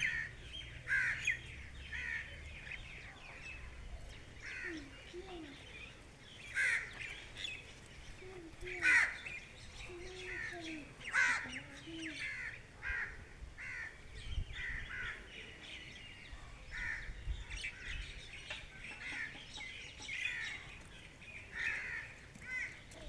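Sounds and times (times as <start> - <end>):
wild birds calling: 0.0 - 23.0
harsh caw-like calls: 0.9 - 1.4, 6.6 - 6.9, 11.1 - 11.6, 12.3 - 14.0.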